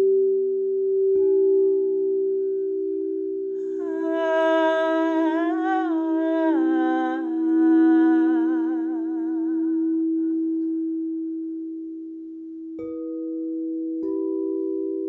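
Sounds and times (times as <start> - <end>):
singing bowl ringing: 0.0 - 15.0
person humming a slow melody: 3.5 - 12.9.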